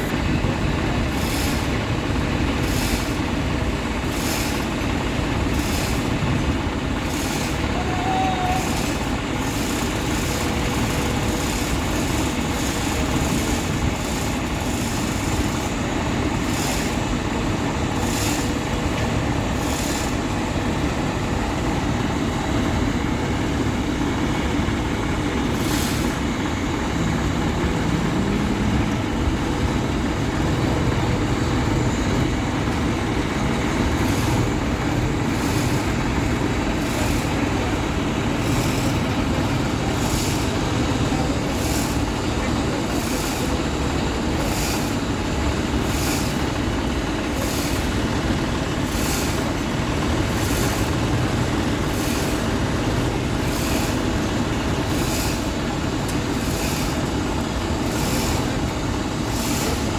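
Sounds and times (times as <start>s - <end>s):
heavy diesel engine rumbling: 0.0s - 59.9s.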